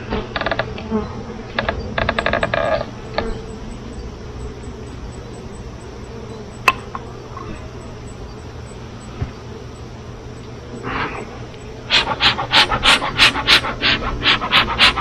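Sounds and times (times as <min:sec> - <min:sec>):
honeybee buzzing: 0:00.0 - 0:15.0
steady low hum: 0:00.0 - 0:15.0
sharp click: 0:03.1 - 0:08.2, 0:09.0 - 0:15.0.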